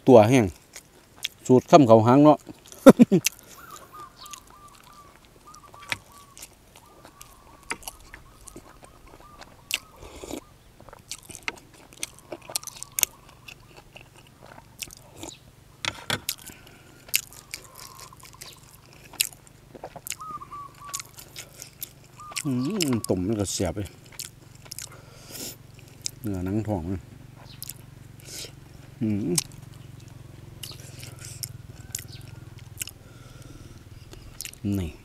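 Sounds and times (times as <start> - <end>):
close-up chewing and biting: 0.5 - 1.5, 2.4 - 26.6, 27.4 - 35.0
wet mouth clicks: 5.5 - 14.2, 32.7 - 33.0, 34.0 - 34.6.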